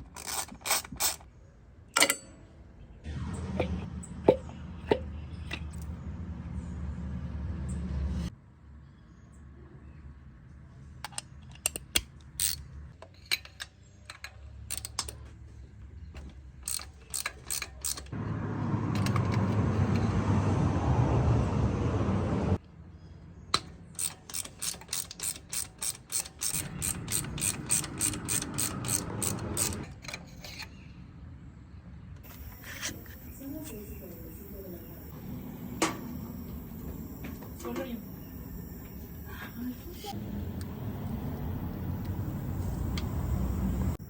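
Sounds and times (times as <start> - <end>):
ratchet wrench clicking: 0.0 - 1.3, 11.1 - 12.6, 13.4 - 15.2, 16.6 - 18.2, 23.6 - 30.6.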